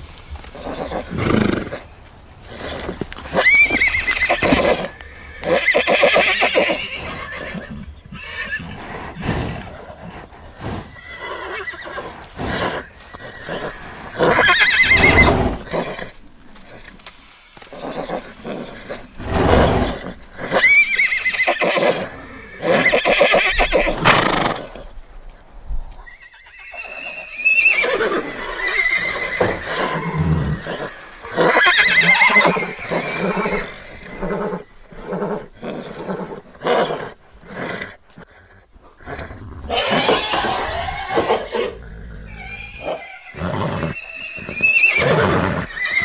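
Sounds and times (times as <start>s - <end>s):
horses neighing: 0.4s - 25.0s, 26.0s - 46.0s
rough horse calls: 2.6s - 9.2s, 10.7s - 24.9s, 39.7s - 46.0s.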